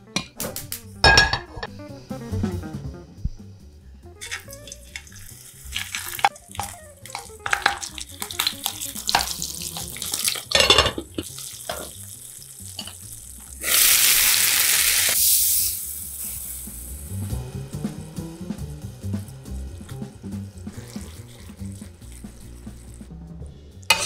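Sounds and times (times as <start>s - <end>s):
metal tongs clinking: 4.2s - 5.2s, 9.1s - 11.9s, 12.8s - 13.0s
oil crackling: 4.2s - 17.0s
peppers frying in hot oil: 4.2s - 17.6s, 19.0s - 23.1s
loud steady sizzle: 4.2s - 23.1s.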